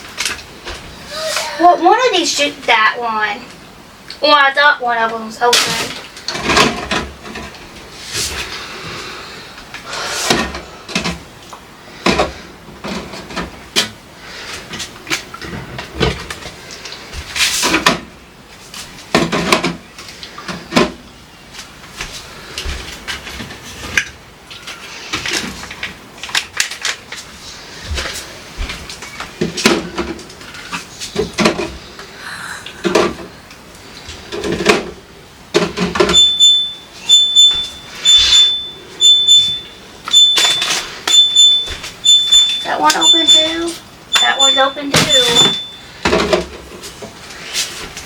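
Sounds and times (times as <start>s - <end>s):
containers knocking and clunking: 19.1s - 19.9s, 32.8s - 33.4s, 34.1s - 36.4s, 42.8s - 47.2s
refrigerator alarm beeping: 36.0s - 46.0s
bottles and containers clattering: 40.1s - 47.2s.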